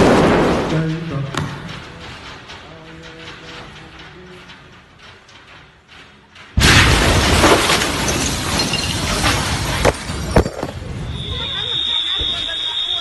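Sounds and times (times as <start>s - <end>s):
explosion boom: 0.0s - 2.7s, 6.6s - 11.1s
shattering glass and falling debris: 6.6s - 10.9s.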